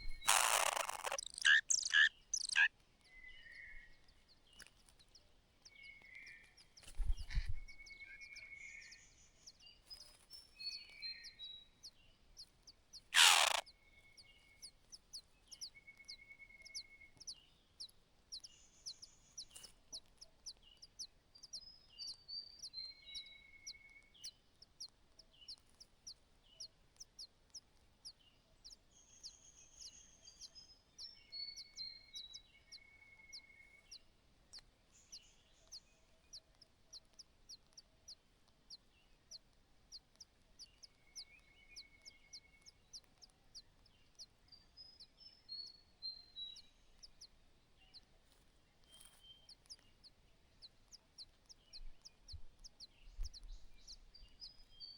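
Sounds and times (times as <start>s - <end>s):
descending whistled bird notes: 0.0s - 2.7s
short sharp high bird call: 13.2s - 13.6s.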